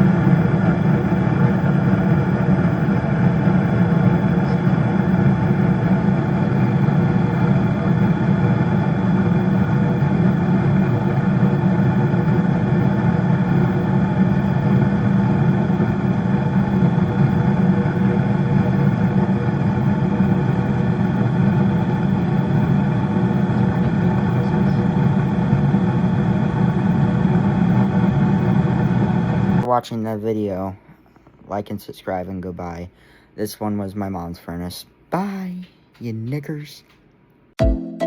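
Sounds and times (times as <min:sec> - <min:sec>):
furnace humming: 0:00.0 - 0:37.6.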